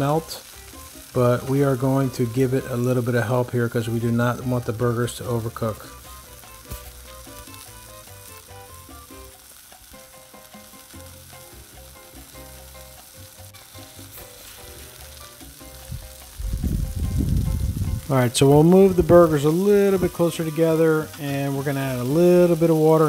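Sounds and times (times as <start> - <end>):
burger patties sizzling on griddle: 0.0 - 23.0
quiet background music: 0.0 - 23.0.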